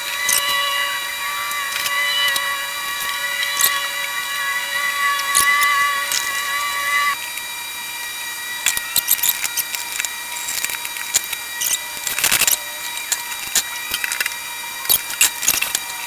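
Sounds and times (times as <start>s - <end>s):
metal parts rattling: 0.0s - 6.4s.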